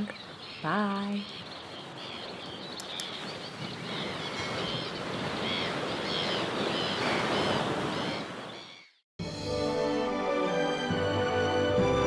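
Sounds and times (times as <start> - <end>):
birds calling: 0.0 - 9.0.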